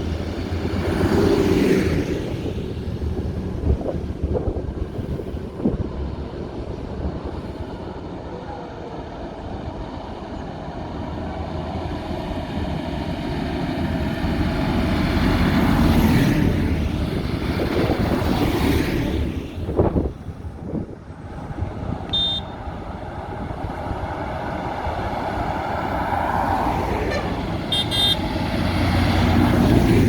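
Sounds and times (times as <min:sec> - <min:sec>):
tractor engine passing by: 0:22.6 - 0:30.0.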